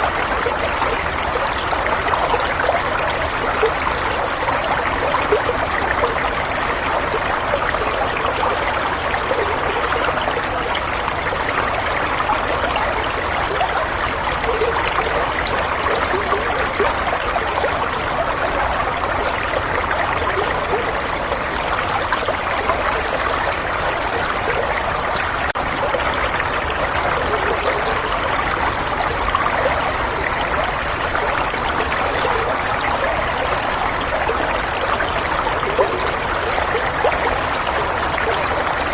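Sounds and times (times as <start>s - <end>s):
water trickling steadily: 0.0s - 38.9s.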